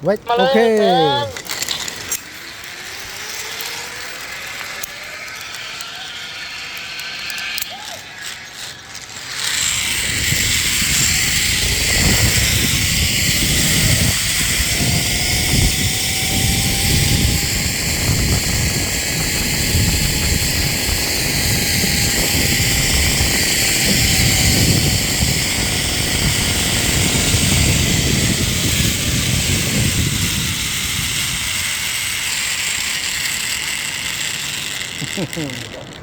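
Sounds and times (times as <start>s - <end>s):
zipline trolley whine on cable: 0.0s - 36.0s
wind rumble on microphone: 9.7s - 32.2s.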